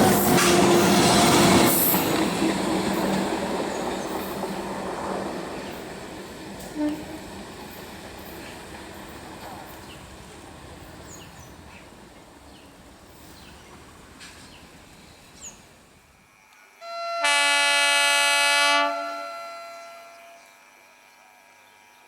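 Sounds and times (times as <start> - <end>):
train rumbling past: 0.0 - 16.3
train horn blast: 6.6 - 7.3, 16.8 - 21.2.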